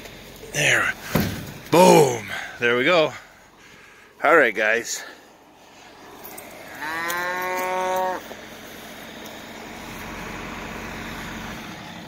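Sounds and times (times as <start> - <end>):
cow mooing: 6.6 - 8.3.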